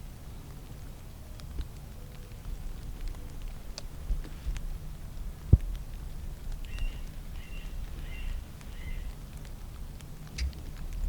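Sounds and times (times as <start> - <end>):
wind rumble: 0.0 - 11.0
bird chirping: 6.7 - 9.1.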